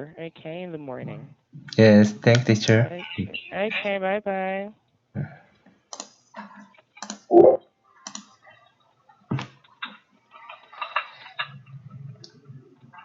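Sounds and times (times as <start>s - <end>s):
computer keyboard and mouse clicks: 5.9s - 6.2s, 7.0s - 7.3s, 8.0s - 8.4s.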